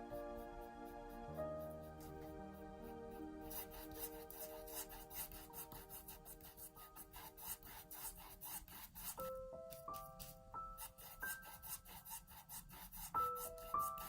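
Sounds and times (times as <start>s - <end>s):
soft background music: 0.0s - 14.0s
paintbrush scrubbing on canvas: 3.1s - 14.0s.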